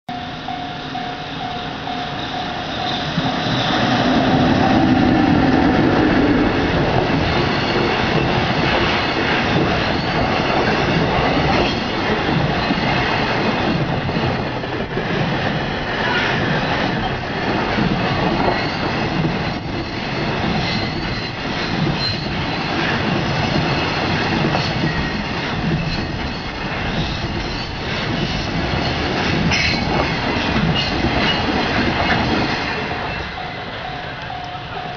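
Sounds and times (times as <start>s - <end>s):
wheel squeal: 0.1s - 5.3s
electric locomotive humming: 0.1s - 34.9s.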